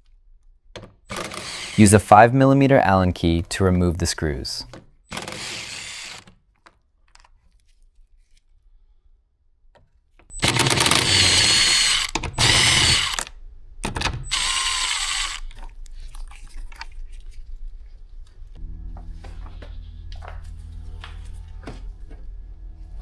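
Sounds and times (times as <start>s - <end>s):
cordless drill motor whine: 1.1s - 2.0s, 5.1s - 6.3s, 10.3s - 13.3s, 14.2s - 15.6s.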